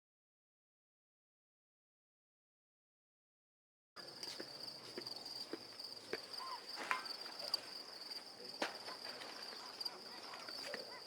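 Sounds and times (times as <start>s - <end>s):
insects trilling: 4.0s - 11.0s.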